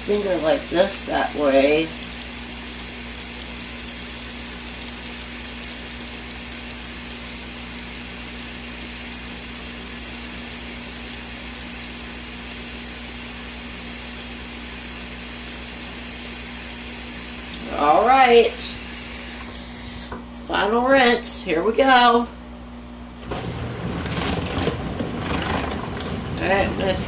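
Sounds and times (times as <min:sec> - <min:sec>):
washing machine motor humming: 0:00.0 - 0:27.0.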